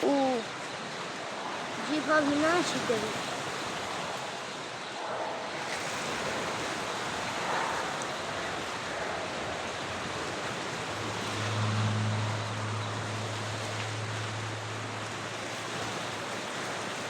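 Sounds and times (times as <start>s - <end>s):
wind on microphone: 1.1s - 17.0s
low steady hum: 4.7s - 16.6s.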